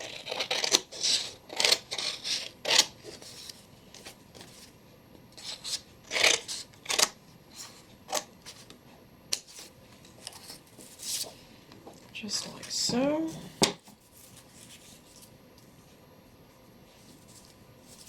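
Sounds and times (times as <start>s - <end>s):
scissors snipping paper: 0.0s - 2.9s
paper rustling: 13.9s - 15.3s, 16.9s - 18.0s.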